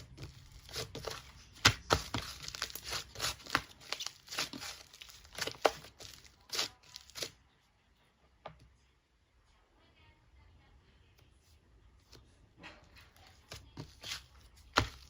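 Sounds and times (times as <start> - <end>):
crinkling and crackling: 0.0 - 7.4, 12.6 - 15.0.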